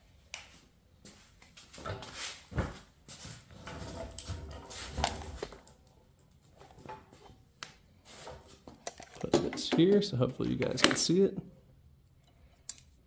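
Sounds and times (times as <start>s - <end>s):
tools and parts clicking and knocking: 8.7s - 11.1s.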